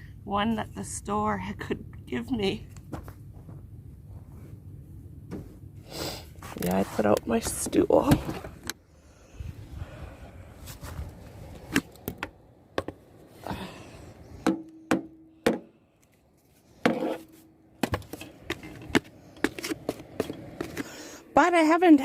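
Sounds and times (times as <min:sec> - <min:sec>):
soft rustling: 0:06.4 - 0:08.6, 0:10.6 - 0:11.7.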